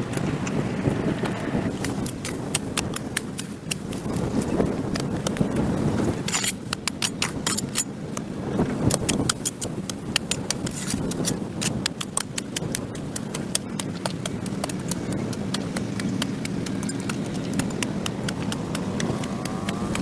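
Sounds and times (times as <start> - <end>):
low steady rumble: 0.0 - 20.0
hand tool scraping dirt on concrete: 6.0 - 7.9, 8.8 - 20.0.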